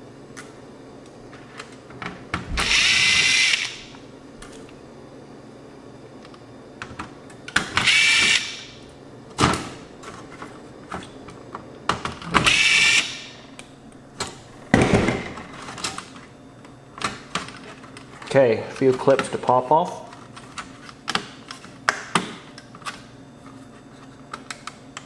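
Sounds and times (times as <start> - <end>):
cordless drill motor whine: 2.5 - 4.0, 7.8 - 8.7, 12.4 - 13.4
clicks and knocks of parts: 24.0 - 25.0.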